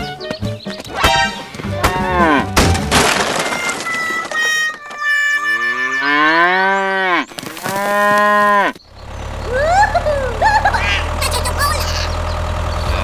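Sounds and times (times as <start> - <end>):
cow mooing: 1.8 - 2.6, 5.4 - 8.8
low engine hum: 7.2 - 13.0.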